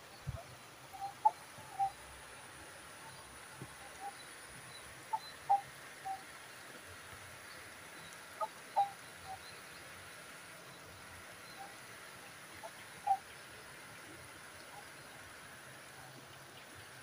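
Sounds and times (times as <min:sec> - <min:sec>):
light rain hissing: 0:00.0 - 0:17.0
bird calling: 0:00.9 - 0:02.0, 0:04.8 - 0:06.2, 0:08.4 - 0:09.5, 0:12.6 - 0:13.3.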